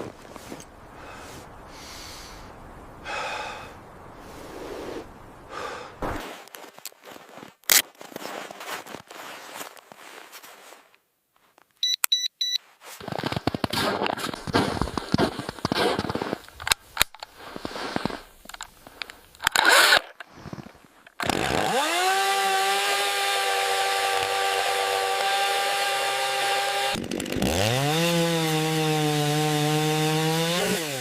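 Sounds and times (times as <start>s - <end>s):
crunching and rustling: 0.0s - 1.5s, 6.0s - 11.7s, 12.6s - 21.2s
short electronic beeps: 11.8s - 12.6s
mini chainsaw whining: 19.6s - 20.0s, 21.2s - 31.0s.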